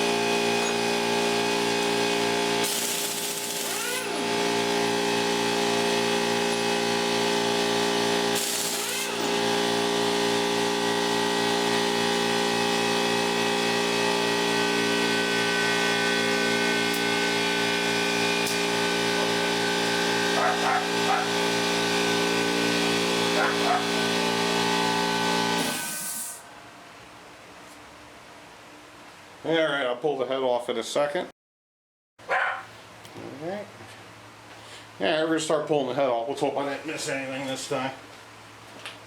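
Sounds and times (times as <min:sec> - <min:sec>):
mechanical hum with low pulsing: 0:00.0 - 0:29.4
dog whining: 0:20.4 - 0:21.3, 0:23.4 - 0:24.0, 0:32.3 - 0:32.7.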